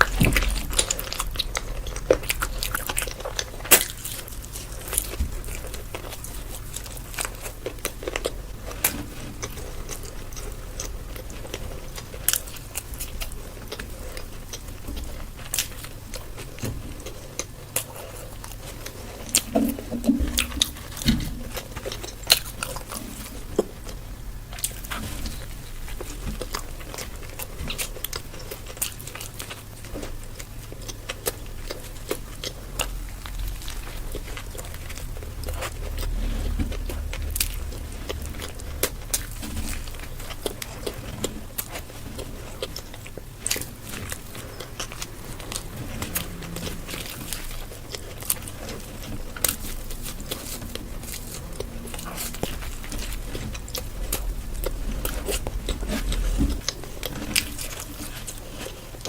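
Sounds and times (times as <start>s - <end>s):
person chewing crunchy food: 0.0s - 59.0s.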